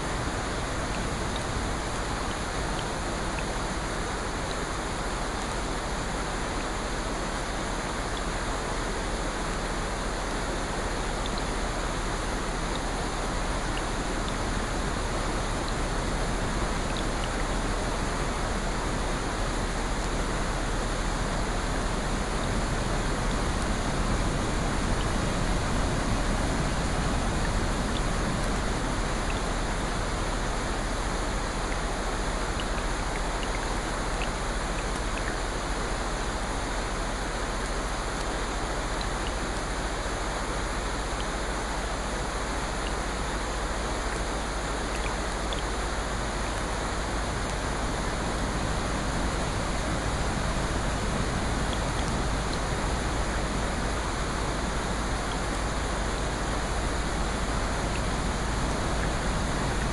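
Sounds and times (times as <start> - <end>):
rushing water: 0.0 - 59.9
faint ticks: 11.0 - 11.6, 12.6 - 13.0, 31.3 - 36.4, 37.6 - 39.7, 42.8 - 47.7.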